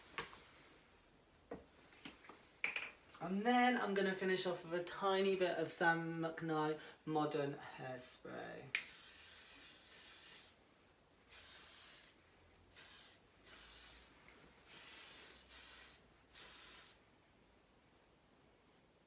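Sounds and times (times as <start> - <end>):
aerosol spray hissing bursts: 8.8 - 10.6, 11.3 - 17.0.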